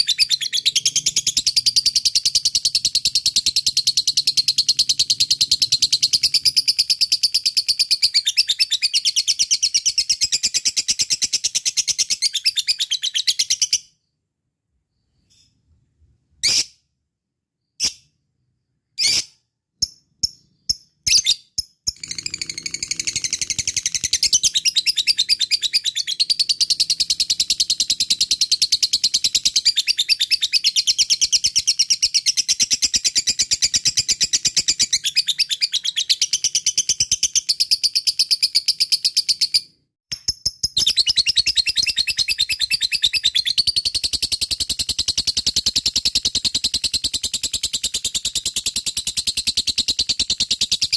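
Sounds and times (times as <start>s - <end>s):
lovebird chattering song: 0.0s - 13.8s.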